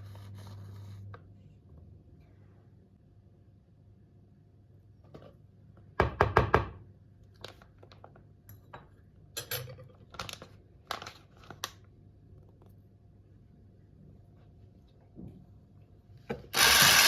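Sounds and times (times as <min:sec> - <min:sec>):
dishes and utensils clinking: 0:08.5 - 0:10.0.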